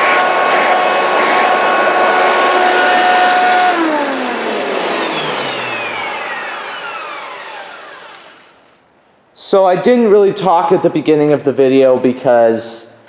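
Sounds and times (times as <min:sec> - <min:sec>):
vacuum cleaner motor whining: 0:00.0 - 0:08.8.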